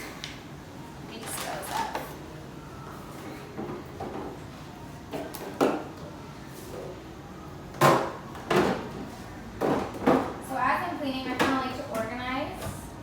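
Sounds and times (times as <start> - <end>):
bottles and containers clunking: 9.6 - 10.4.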